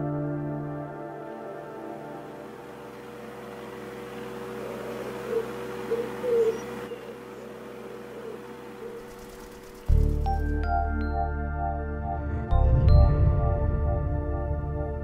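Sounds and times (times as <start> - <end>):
soft hum and hiss: 0.0 - 10.9
bird cooing: 4.1 - 9.4.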